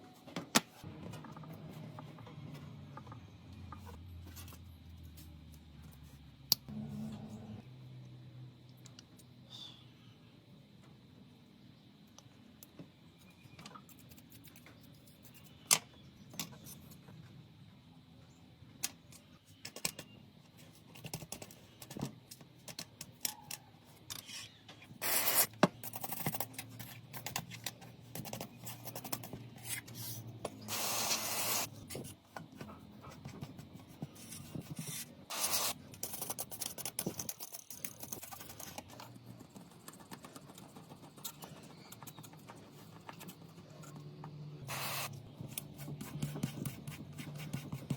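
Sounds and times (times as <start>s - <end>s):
tools rubbing and scraping: 24.0s - 44.1s.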